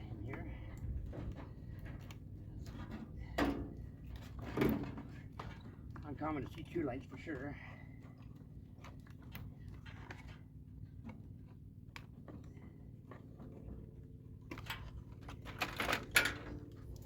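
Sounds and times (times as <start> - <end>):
steady low hum: 0.0 - 17.0
metal parts clicking and rattling: 14.5 - 17.0.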